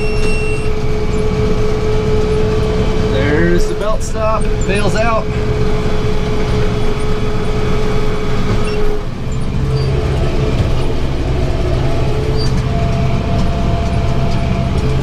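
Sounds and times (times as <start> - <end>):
higher tone: 0.0 - 7.0
steady whine: 0.0 - 15.0
tractor engine and baler running: 0.0 - 15.0.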